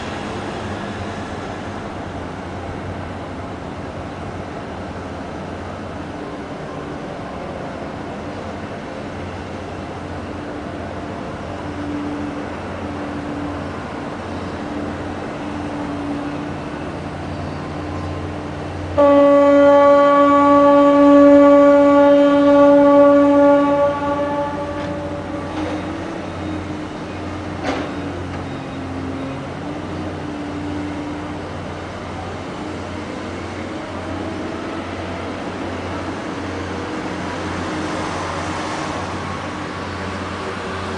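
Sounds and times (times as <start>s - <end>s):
ship engine humming: 0.0s - 40.9s
ship's horn blast: 18.9s - 26.4s.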